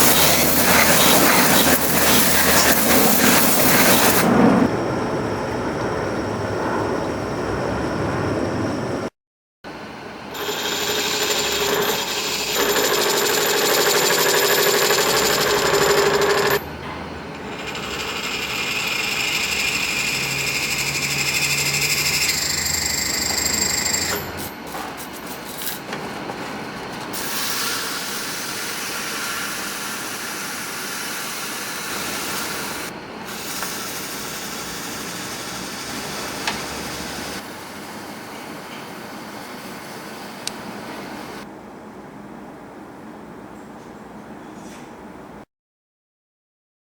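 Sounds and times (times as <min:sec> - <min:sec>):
power tools grinding metal: 0:10.4 - 0:16.6, 0:17.4 - 0:24.6, 0:27.2 - 0:37.4.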